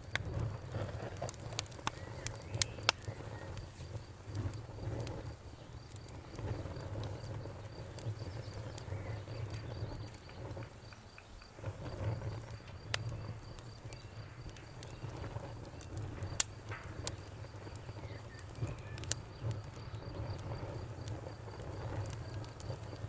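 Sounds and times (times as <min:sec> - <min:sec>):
wood fire crackling and popping: 0:00.0 - 0:23.0
cricket chirping: 0:01.5 - 0:23.0.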